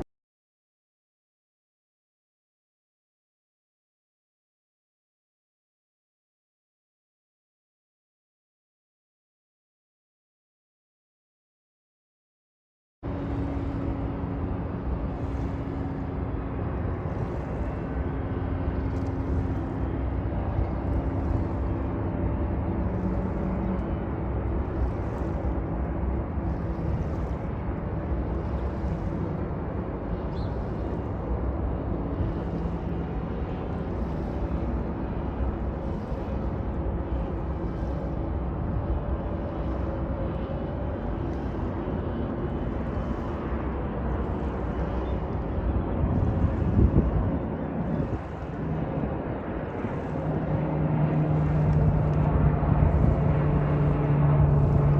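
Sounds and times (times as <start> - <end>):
jet engines rumbling: 13.1 - 54.9.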